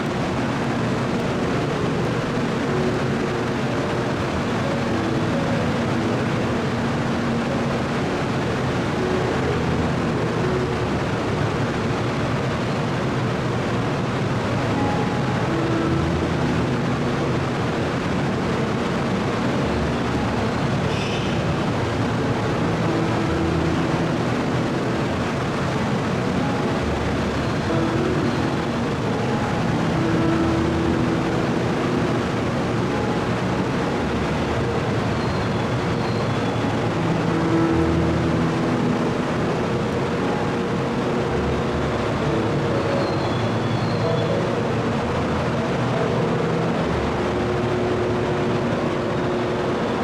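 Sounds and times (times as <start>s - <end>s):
faint humming tones: 0.0s - 50.0s
train rumble and hiss: 0.0s - 50.0s.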